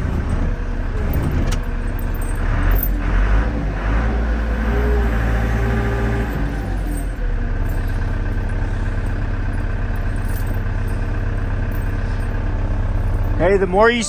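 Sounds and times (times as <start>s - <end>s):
loader diesel engine running: 0.0s - 14.0s.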